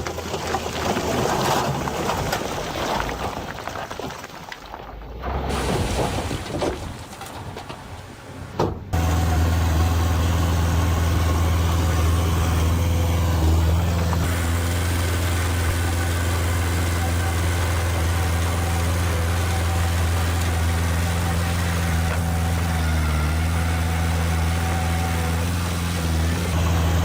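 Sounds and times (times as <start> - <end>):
diesel engine running: 8.2 - 27.0.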